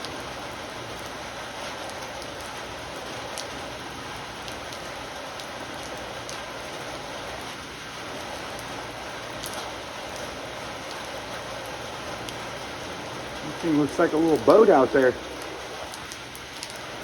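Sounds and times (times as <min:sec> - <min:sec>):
heavy rain falling: 0:00.0 - 0:17.0
raindrops ticking close by: 0:00.0 - 0:17.0.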